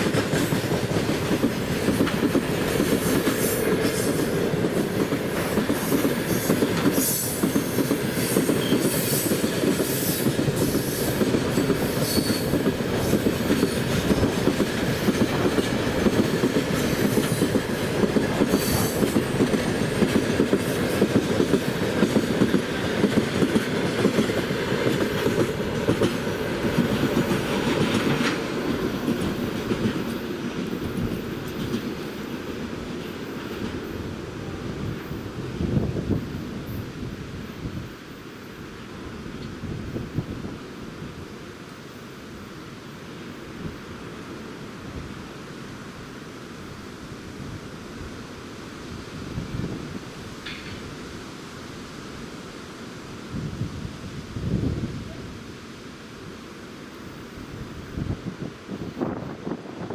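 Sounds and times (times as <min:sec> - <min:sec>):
train wheels clattering on rails: 0:00.0 - 0:36.8, 0:48.5 - 0:51.2.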